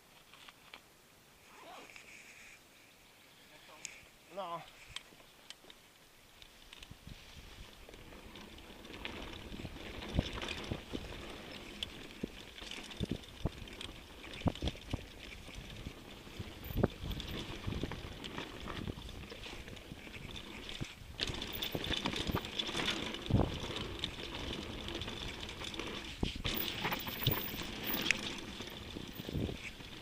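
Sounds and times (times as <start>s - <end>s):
bike knocking and rattling: 6.4s - 30.0s
tyre and wind noise: 6.4s - 30.0s.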